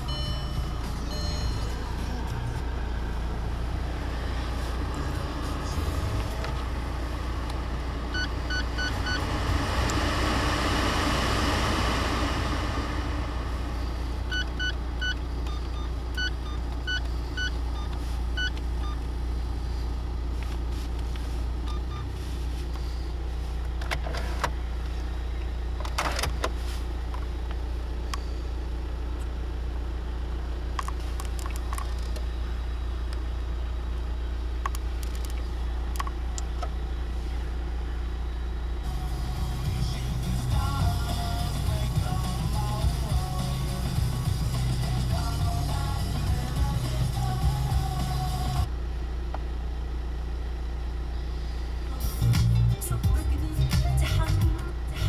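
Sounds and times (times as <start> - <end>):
car warning chime beeps: 0.0 - 3.1, 8.1 - 9.4, 14.2 - 19.2, 21.6 - 22.2
low hum: 0.0 - 55.0.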